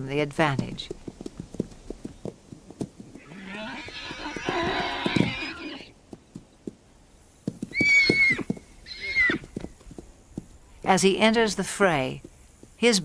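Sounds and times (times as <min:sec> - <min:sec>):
hoof knocks: 0:00.3 - 0:10.9
horses squealing: 0:00.9 - 0:06.0, 0:07.6 - 0:10.0.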